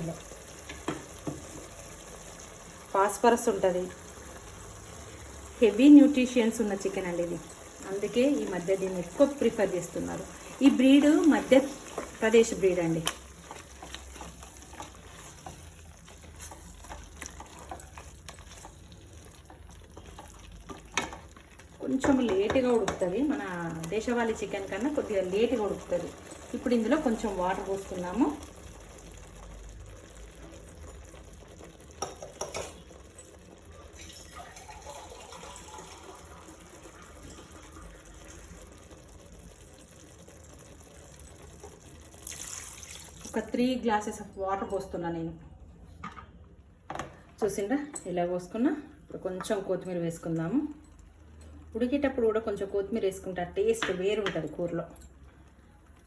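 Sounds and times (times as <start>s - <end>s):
curry sizzling in a pan: 0.0s - 44.2s
water pouring into a pot: 23.8s - 43.6s.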